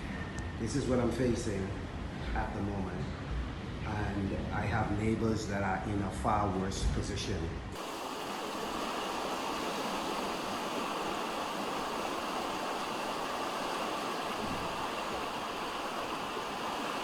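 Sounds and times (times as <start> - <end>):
hurricane wind rushing: 7.8 - 17.0
rushing water: 7.8 - 17.0.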